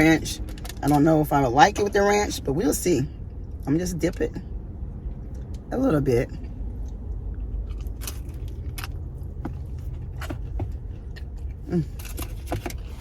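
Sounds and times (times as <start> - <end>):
crisp chewing crunches: 6.4 - 13.0.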